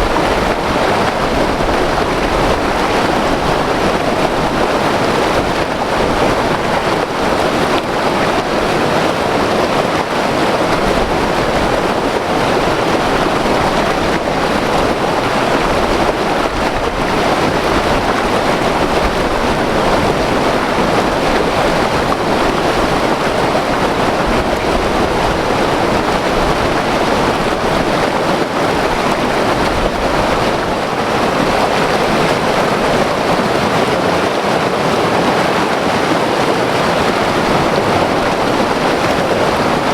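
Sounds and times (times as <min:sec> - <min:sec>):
white water river over rocks: 0:00.0 - 0:39.9.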